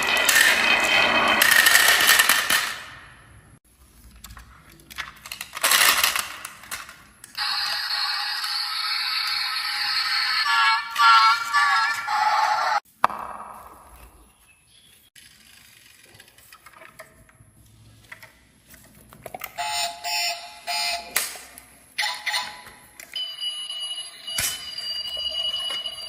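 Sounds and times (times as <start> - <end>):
music: 7.4 - 12.8
ringing electronic beeps: 23.2 - 26.0.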